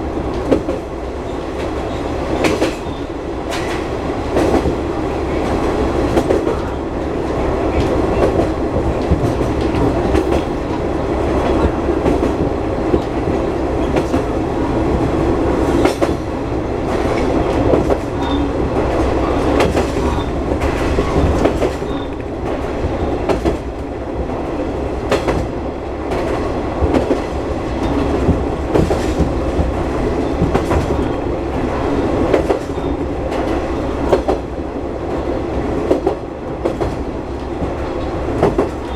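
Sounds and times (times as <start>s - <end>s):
railcar engine and wheels rumbling: 0.0s - 38.9s
wheels clacking over rail joints: 0.3s - 34.5s, 35.8s - 38.9s.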